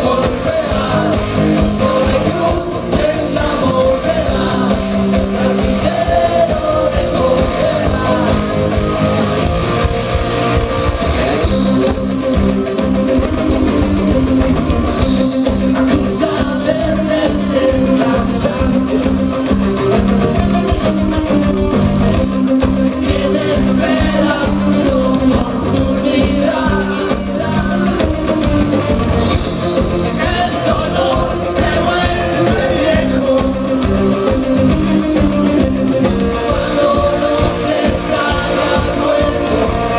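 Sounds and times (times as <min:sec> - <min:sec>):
person singing: 0:00.0 - 0:10.0, 0:13.2 - 0:39.9
rock band playing live: 0:00.0 - 0:39.9.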